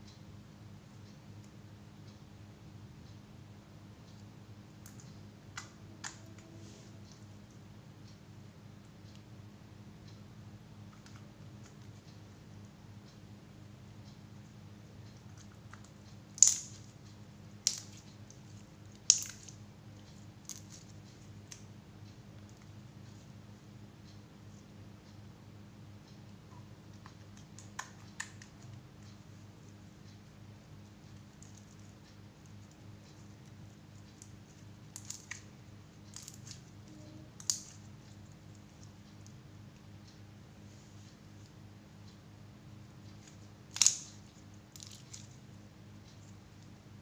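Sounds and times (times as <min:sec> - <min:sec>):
low steady hum: 0:00.0 - 0:47.0
small sharp clicks and crackles: 0:04.0 - 0:08.2, 0:10.8 - 0:13.2, 0:15.0 - 0:23.3, 0:26.9 - 0:40.2, 0:43.0 - 0:46.8.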